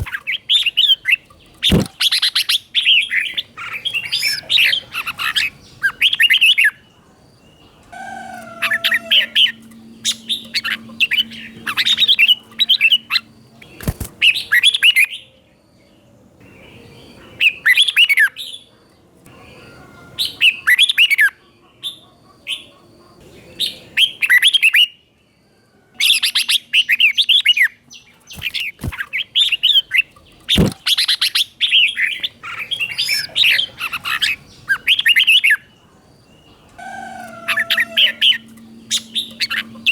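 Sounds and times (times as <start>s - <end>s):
bird warbling song: 0.0s - 15.4s, 26.0s - 39.9s.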